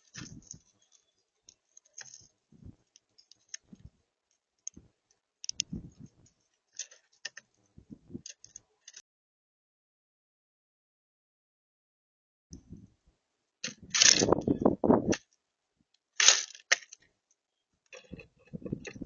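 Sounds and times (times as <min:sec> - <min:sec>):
birds pecking on seed feeder: 0:17.9 - 0:19.0.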